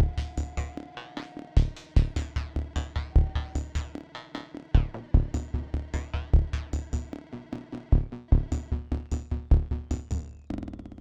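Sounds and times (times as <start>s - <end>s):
punchy synth bass notes: 4.8s - 7.1s, 7.9s - 10.7s.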